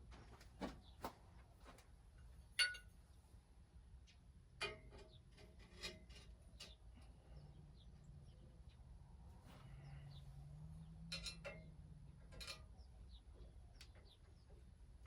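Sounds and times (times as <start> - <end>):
metal hardware clinking: 2.6 - 2.9.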